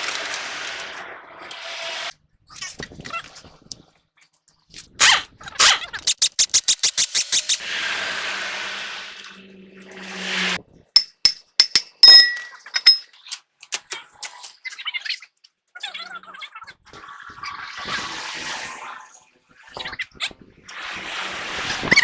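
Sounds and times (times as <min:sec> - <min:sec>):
sharp tool clicks: 0:06.0 - 0:07.6, 0:11.0 - 0:13.0
metallic clinks: 0:11.0 - 0:13.3.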